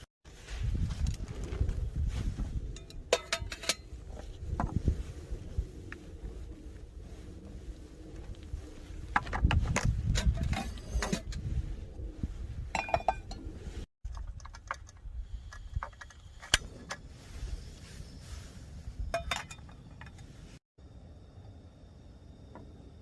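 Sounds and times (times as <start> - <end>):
camp cookware clinking: 2.7 - 4.2, 12.7 - 13.5, 19.1 - 20.3.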